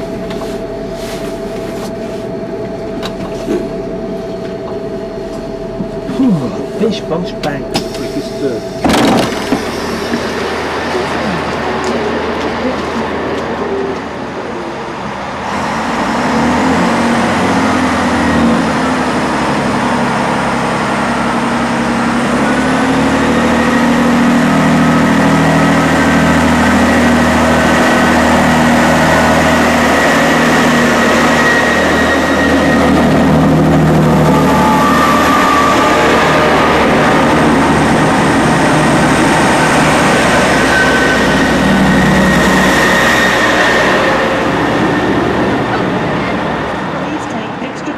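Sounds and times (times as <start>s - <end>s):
diesel train rumble: 0.0s - 47.9s
faint high whine: 24.9s - 47.8s.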